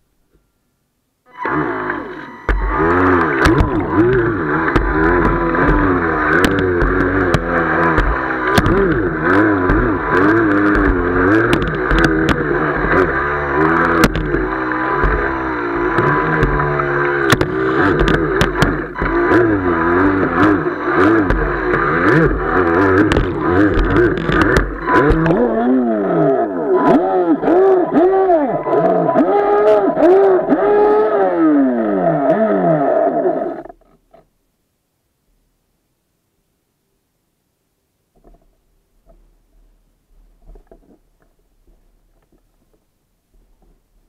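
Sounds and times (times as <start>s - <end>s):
rushing water: 1.4s - 25.7s
speedboat engine running: 1.4s - 33.6s
sharp knocks: 2.5s - 25.4s.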